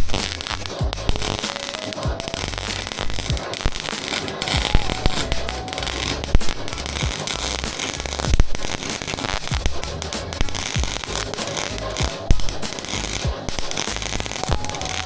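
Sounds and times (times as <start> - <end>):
background music: 0.0 - 15.0
welding arc crackling: 0.0 - 15.0.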